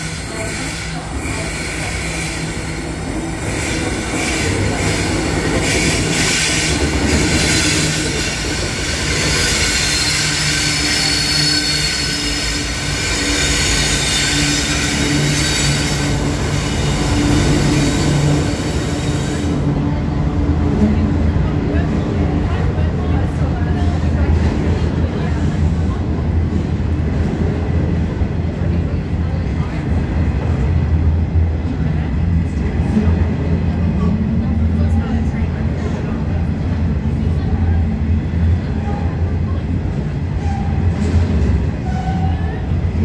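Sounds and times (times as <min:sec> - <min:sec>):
diesel locomotive engines droning: 0:00.0 - 0:43.0
high wheel squeal: 0:05.7 - 0:19.4.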